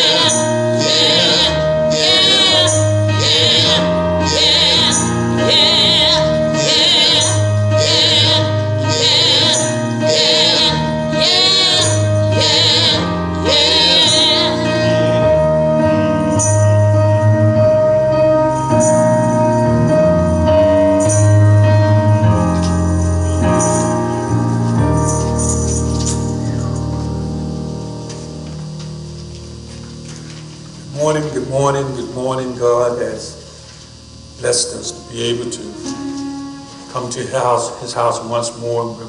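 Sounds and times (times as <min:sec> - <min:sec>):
choir singing gospel: 0:00.0 - 0:16.6
instrumental accompaniment: 0:00.0 - 0:38.8
tambourine jingling: 0:16.2 - 0:16.9, 0:18.5 - 0:19.7, 0:20.3 - 0:26.9.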